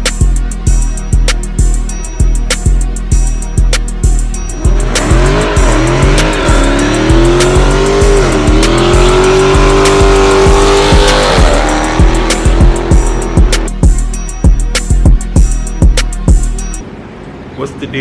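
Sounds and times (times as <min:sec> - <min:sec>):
music with steady beat: 0:00.0 - 0:16.8
car engine revving: 0:04.2 - 0:14.0.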